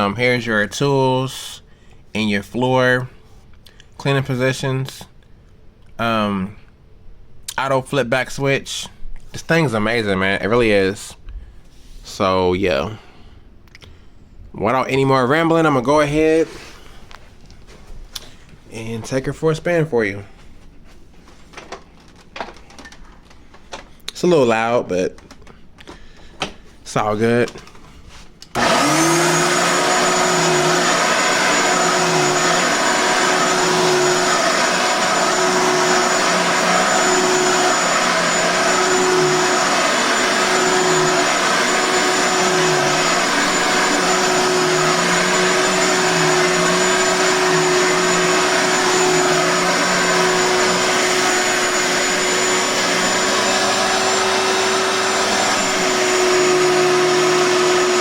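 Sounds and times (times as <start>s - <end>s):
vacuum cleaner running: 28.5s - 58.0s.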